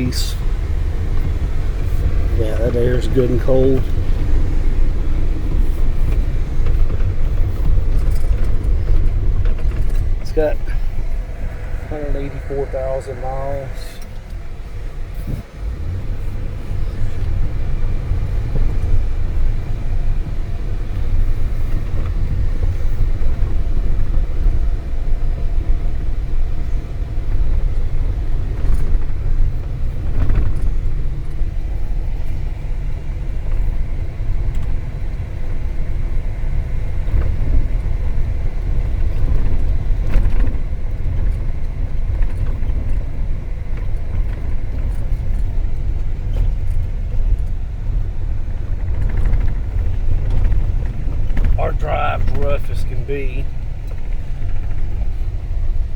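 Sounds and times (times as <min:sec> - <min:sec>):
truck engine rumble: 0:00.0 - 0:55.9
knocks and rattles from bumps: 0:01.1 - 0:11.1.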